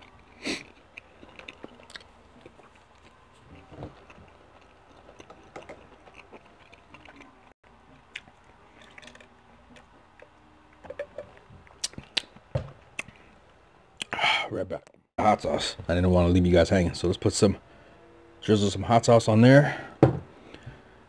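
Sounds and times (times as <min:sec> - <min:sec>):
man chewing with mouth clicks: 0:00.0 - 0:10.4, 0:11.6 - 0:13.3.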